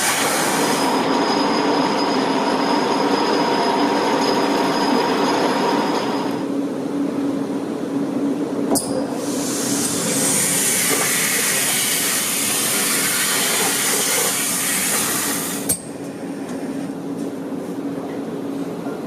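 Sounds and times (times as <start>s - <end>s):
industrial vacuum humming: 0.0s - 19.0s
air rushing through suction hose: 9.2s - 15.7s.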